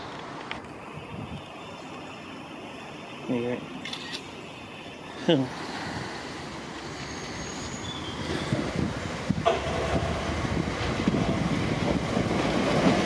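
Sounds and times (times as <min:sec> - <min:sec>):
train wheel and rail noise: 0:00.0 - 0:13.0
high wheel squeals: 0:06.8 - 0:08.8.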